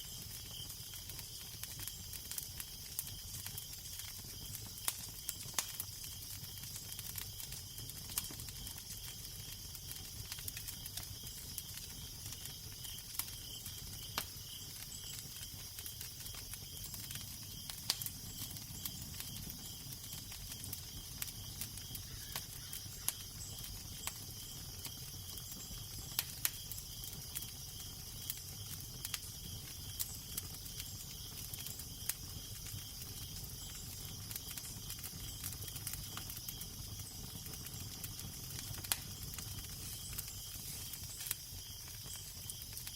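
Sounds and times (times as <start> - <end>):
fire crackling and popping: 0.0 - 42.9
steady hiss: 38.5 - 42.3.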